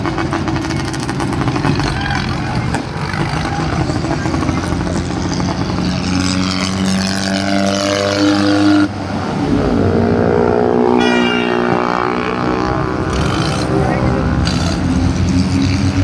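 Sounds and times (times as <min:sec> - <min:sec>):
tractor engine running at high revs: 0:00.0 - 0:11.1, 0:12.0 - 0:16.0.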